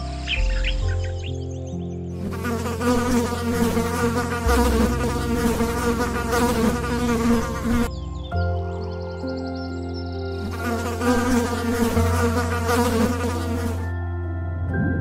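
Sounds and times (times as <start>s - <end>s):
insect buzzing: 2.1s - 8.0s, 10.3s - 13.9s.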